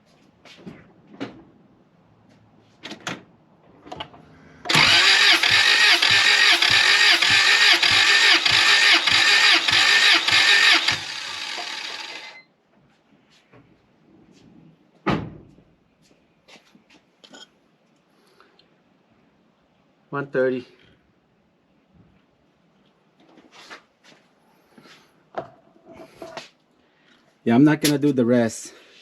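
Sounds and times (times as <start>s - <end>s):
starter motor cranking engine: 4.6s - 12.4s.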